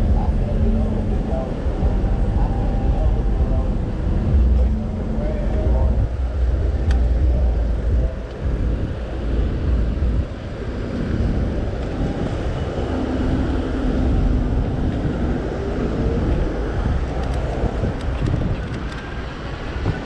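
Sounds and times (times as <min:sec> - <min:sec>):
street traffic noise: 0:00.0 - 0:20.0
wind buffeting microphone: 0:00.0 - 0:20.0.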